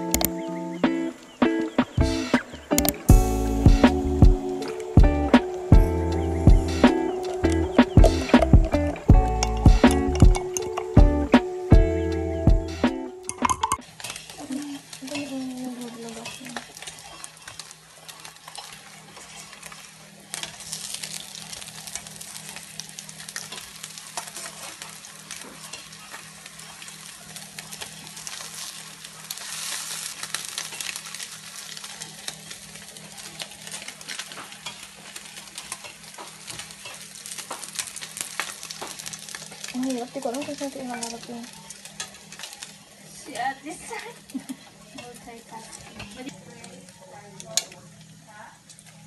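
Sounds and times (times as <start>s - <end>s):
small clicks: 0.1s - 0.3s
meat sizzling in a frying pan: 13.8s - 49.0s.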